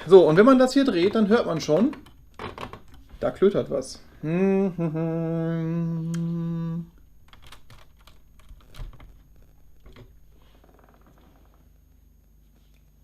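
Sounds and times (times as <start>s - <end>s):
plastic parts clicking and rattling: 1.0s - 3.0s
man humming a note: 4.1s - 7.0s.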